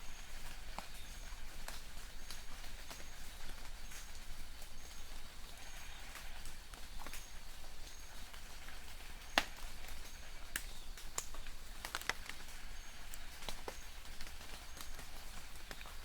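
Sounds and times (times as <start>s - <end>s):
rain dripping on leaves: 0.0s - 16.0s.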